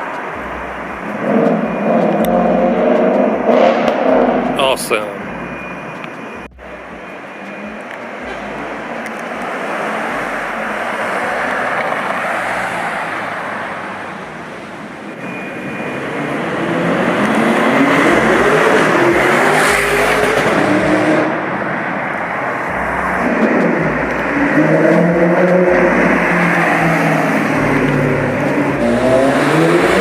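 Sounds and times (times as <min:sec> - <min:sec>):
street traffic: 0:00.0 - 0:30.0
car engine accelerating past: 0:16.0 - 0:30.0.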